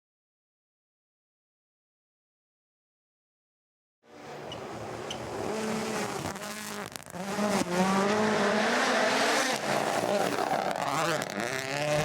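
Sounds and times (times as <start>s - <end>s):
rally car engine revving: 4.1s - 12.0s.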